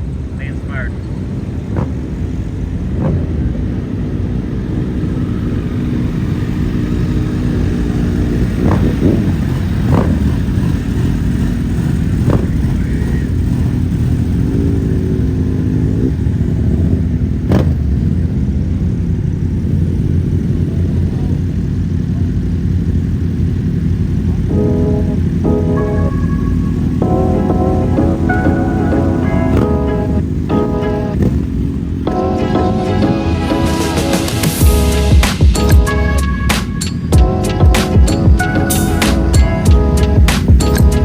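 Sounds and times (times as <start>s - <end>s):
motorcycle engines rumbling: 0.0s - 41.0s.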